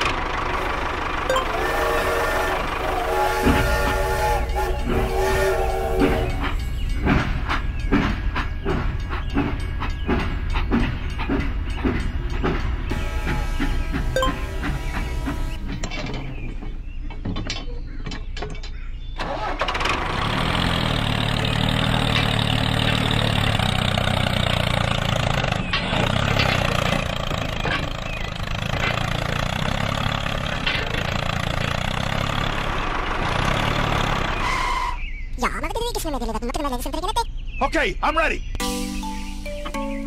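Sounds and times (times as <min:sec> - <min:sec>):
engine running: 0:00.0 - 0:16.9, 0:19.2 - 0:34.6.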